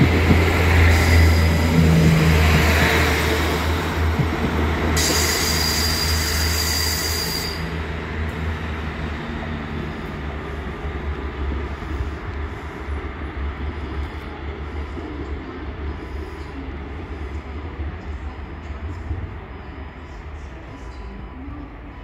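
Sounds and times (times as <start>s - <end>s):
train rumbling: 0.0s - 22.0s
high wheel squeal: 5.0s - 7.8s.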